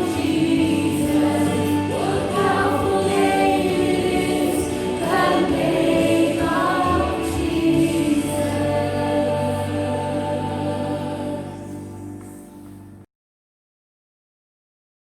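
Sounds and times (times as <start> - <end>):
congregation and band singing: 0.0 - 12.4
sustained chords: 0.0 - 13.0.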